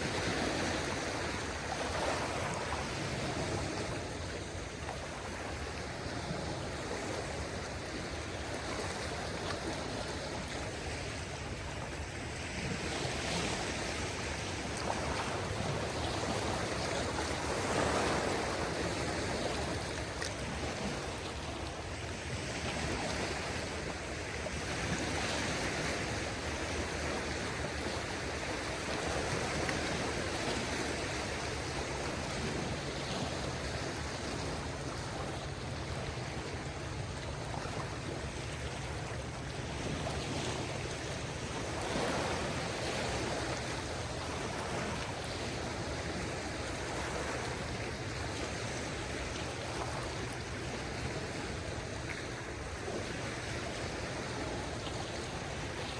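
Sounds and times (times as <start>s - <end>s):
small waves washing onto shore: 0.0s - 55.9s.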